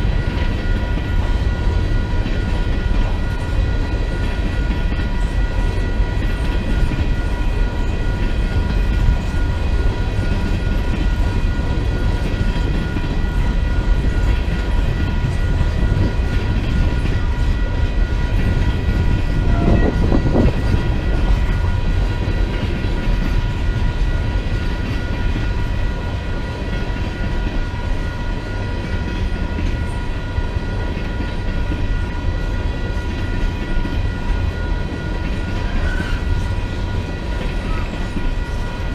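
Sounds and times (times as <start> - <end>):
freight train rumbling on rails: 0.0 - 38.9.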